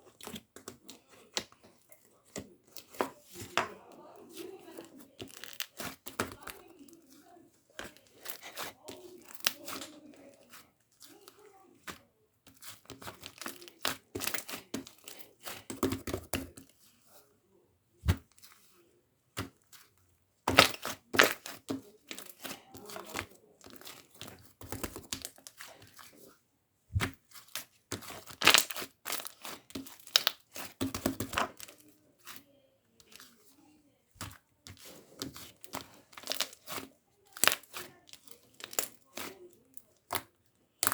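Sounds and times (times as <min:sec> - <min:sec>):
slime crackling and tearing: 0:05.2 - 0:06.2, 0:20.5 - 0:24.0, 0:27.5 - 0:31.7, 0:34.8 - 0:39.4.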